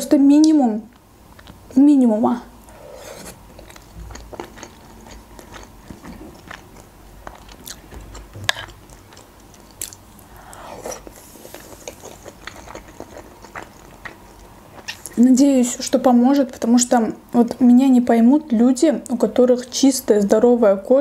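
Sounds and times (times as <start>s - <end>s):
chewing soft food: 0.9s - 1.7s, 2.7s - 15.2s.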